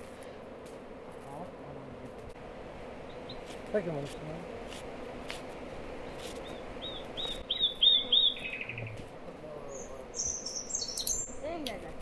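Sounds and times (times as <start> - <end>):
buzzy bird trill: 6.1 - 9.0, 9.7 - 11.6
thin bird chirps: 6.1 - 9.0, 9.7 - 11.4
songbird singing high notes: 6.4 - 9.0, 9.7 - 11.4.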